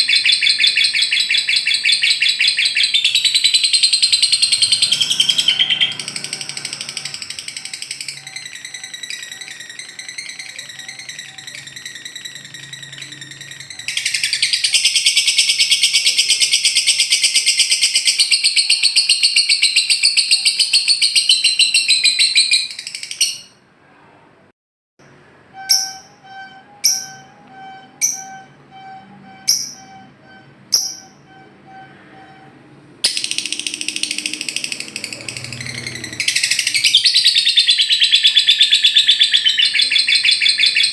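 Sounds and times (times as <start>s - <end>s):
bird chattering trill: 0.0s - 23.5s, 25.6s - 32.4s, 33.1s - 40.9s
steady whistle-like tone: 2.8s - 16.6s, 25.5s - 35.2s.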